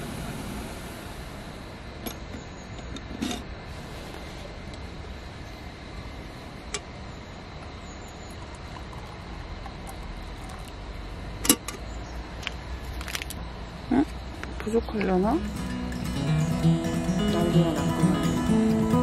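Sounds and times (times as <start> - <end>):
steady hiss: 0.0 - 13.7, 15.4 - 19.0
hot water pouring into a mug: 8.1 - 10.8.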